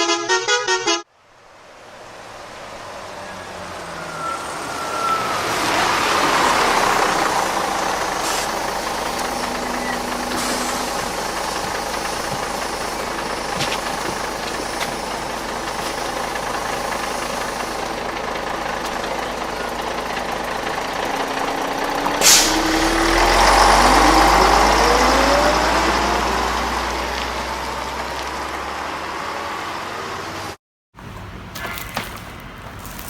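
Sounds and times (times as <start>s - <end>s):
bus engine: 0.0s - 33.0s
air brakes hissing: 6.5s - 18.1s, 22.1s - 23.2s.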